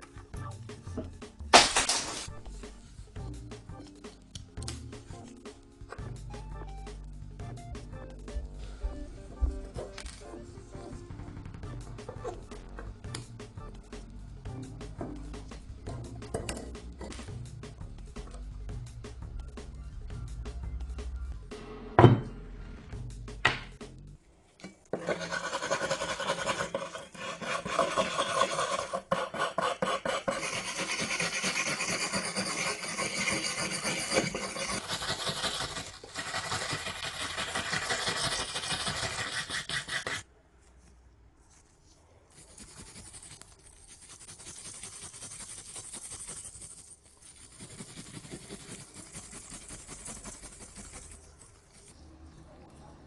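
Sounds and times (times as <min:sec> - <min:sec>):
abrasive rasping against a surface: 0:25.0 - 0:40.2.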